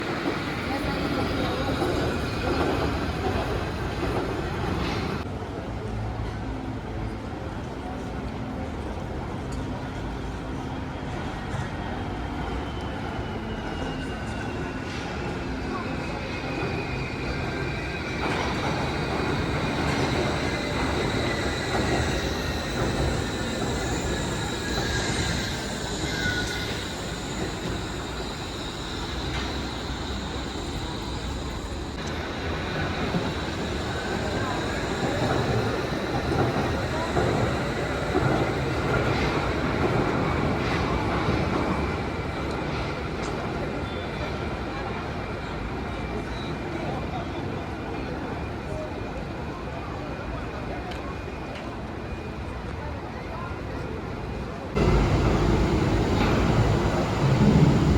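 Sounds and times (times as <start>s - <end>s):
suspension railway train running: 0.0s - 57.9s
high wheel whines: 16.2s - 41.0s, 54.7s - 57.9s.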